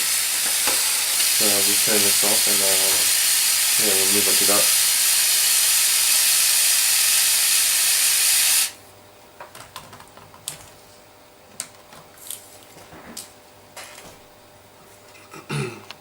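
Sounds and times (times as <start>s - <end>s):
model engine hissing: 0.0s - 8.8s.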